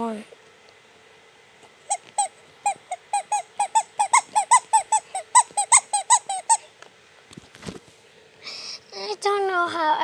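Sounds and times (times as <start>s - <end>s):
squeaky toy horn squeaks: 1.9s - 6.7s.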